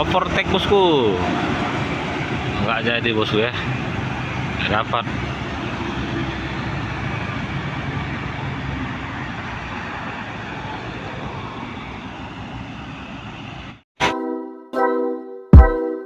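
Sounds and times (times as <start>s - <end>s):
heavy traffic passing: 0.0s - 13.8s
music with punchy beats: 15.6s - 15.9s.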